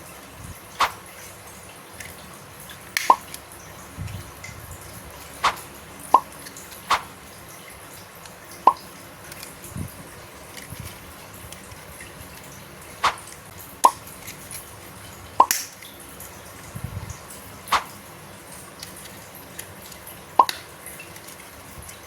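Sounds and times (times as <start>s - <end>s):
plastic toy parts clicking: 2.0s - 2.2s, 2.8s - 3.4s, 9.3s - 9.6s, 10.5s - 13.2s, 15.4s - 15.9s, 18.7s - 21.4s.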